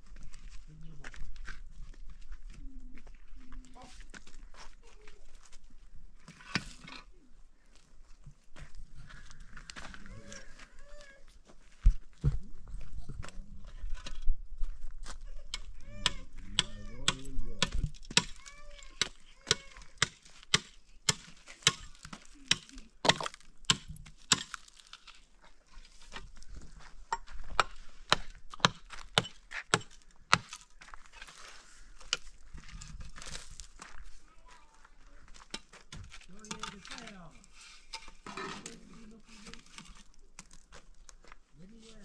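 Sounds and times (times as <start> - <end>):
tool striking wood: 16.0 - 18.4.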